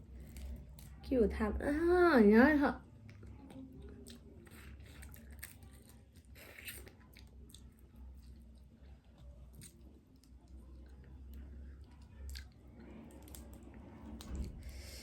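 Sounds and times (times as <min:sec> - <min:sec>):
person chewing crab: 0:03.0 - 0:13.5.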